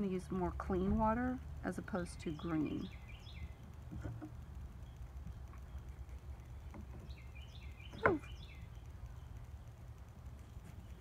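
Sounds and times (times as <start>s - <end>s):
low steady background rumble: 0.0s - 11.0s
birds chirping: 2.0s - 11.0s.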